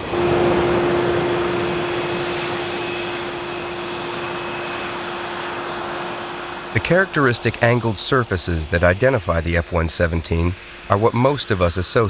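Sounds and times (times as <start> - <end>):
high whine: 0.0 - 11.7
jet engine droning: 0.0 - 12.0.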